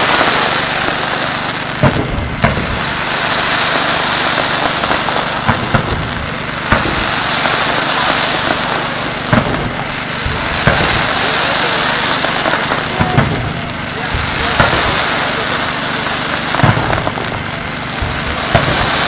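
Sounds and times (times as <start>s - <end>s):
fireworks bangs: 0.0s - 19.0s
fireworks crackling hiss: 0.0s - 19.0s.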